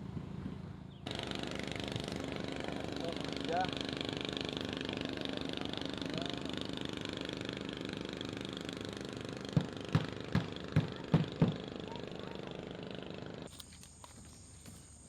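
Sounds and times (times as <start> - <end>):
small engine idling: 0.9 - 15.0
sharp knocks: 9.5 - 11.6.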